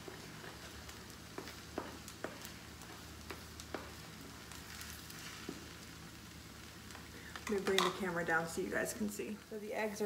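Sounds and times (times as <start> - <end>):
spatula stirring: 0.0 - 5.9
eggs frying faintly: 0.0 - 10.0.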